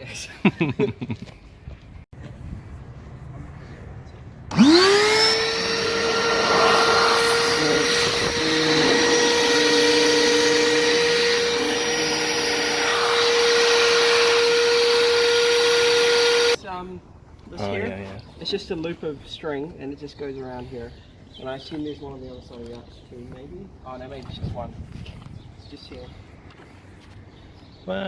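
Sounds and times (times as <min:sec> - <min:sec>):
electric air pump whining: 0:04.5 - 0:16.6.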